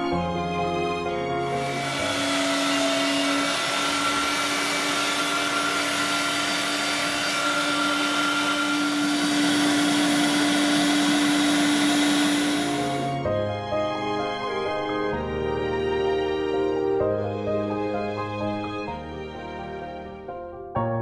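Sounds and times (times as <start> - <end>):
electric meat grinder whirring: 1.3 - 13.3.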